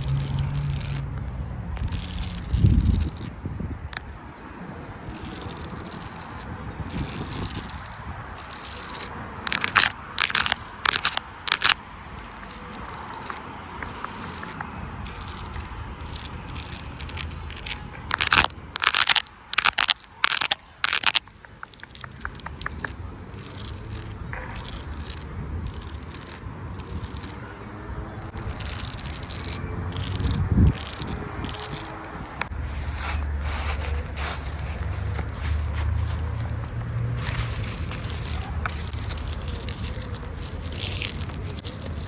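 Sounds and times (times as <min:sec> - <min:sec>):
crackling and crunching: 0:00.0 - 0:03.4, 0:05.0 - 0:27.4, 0:28.2 - 0:42.0.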